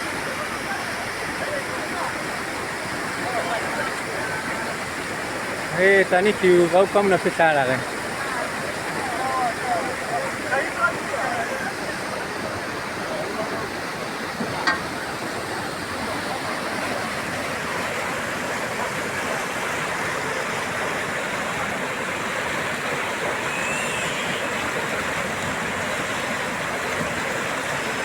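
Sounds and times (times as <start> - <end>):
roar of fast river water: 0.0 - 28.0.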